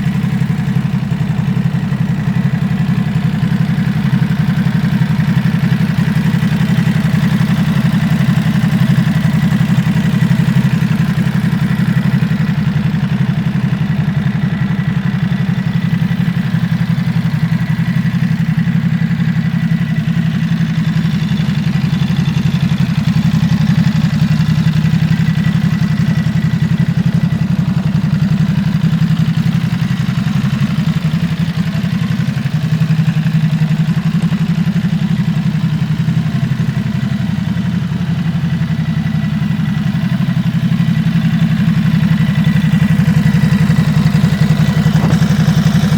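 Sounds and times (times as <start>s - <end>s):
motorcycle engine idling: 0.0s - 45.9s.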